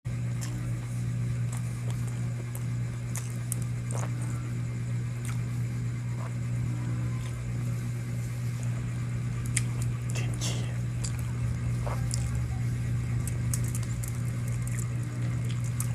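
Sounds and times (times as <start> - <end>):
low mechanical hum: 0.1 - 15.9.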